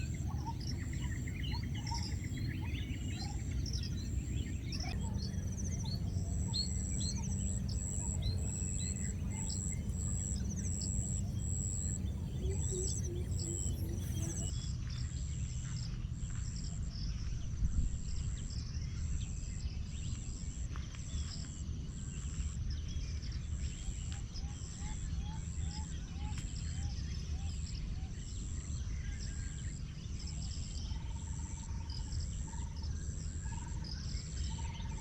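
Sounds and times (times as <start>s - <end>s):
bird chirps: 0.0s - 14.5s
insect calling in high pulses: 0.0s - 14.5s
steady low rumble: 0.0s - 14.6s.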